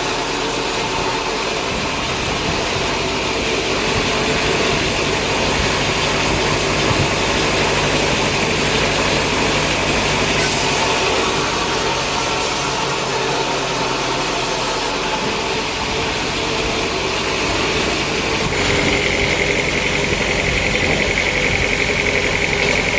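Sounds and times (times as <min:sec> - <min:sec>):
pulsing high whine: 0:00.0 - 0:22.9
sawmill machinery running: 0:00.0 - 0:22.9.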